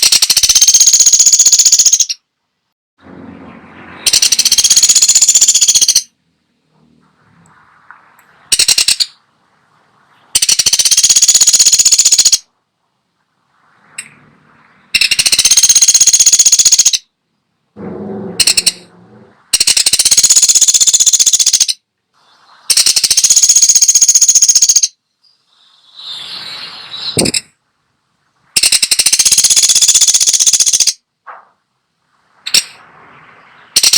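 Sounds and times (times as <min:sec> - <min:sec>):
woodpecker rattling call: 0:00.0 - 0:02.2, 0:04.0 - 0:06.1, 0:08.5 - 0:09.2, 0:10.3 - 0:12.5, 0:14.9 - 0:17.1, 0:18.4 - 0:18.9, 0:19.5 - 0:21.8, 0:22.7 - 0:27.5, 0:28.6 - 0:31.0, 0:32.4 - 0:32.8, 0:33.6 - 0:33.9.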